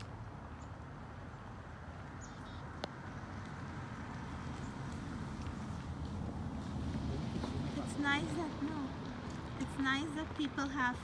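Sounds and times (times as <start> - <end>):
wind rumble: 1.1 - 11.0
small birds chirping: 2.1 - 2.8.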